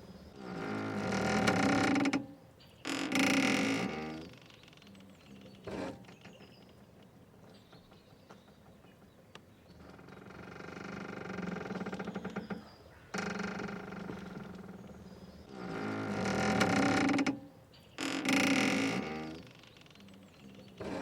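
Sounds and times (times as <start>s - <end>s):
mooring rope creaking: 0.4s - 2.3s, 2.9s - 5.0s, 9.8s - 21.0s.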